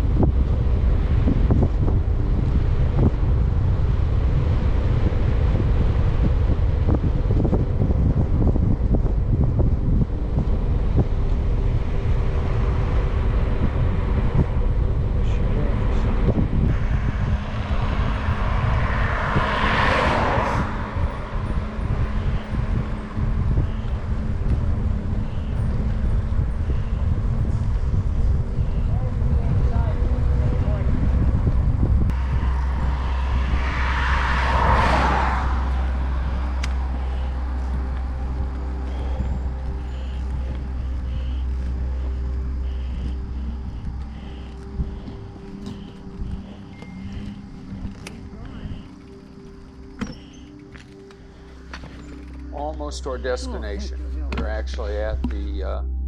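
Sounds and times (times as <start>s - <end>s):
wind rumbling on microphone: 0.0s - 56.0s
car tyre hiss passing: 16.7s - 22.4s, 32.1s - 38.4s.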